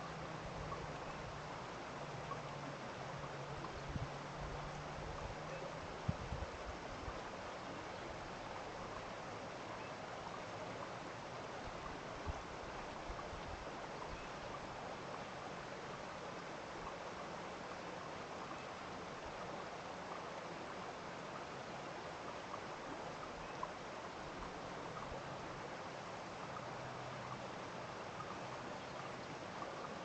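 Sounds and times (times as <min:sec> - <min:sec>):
stream rushing: 0:00.0 - 0:30.0.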